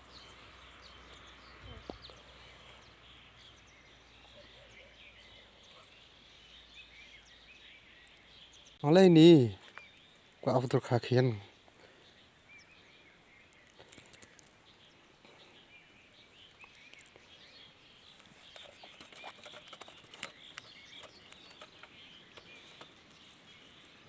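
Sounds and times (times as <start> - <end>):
faint bird chirps: 0.0 - 24.0.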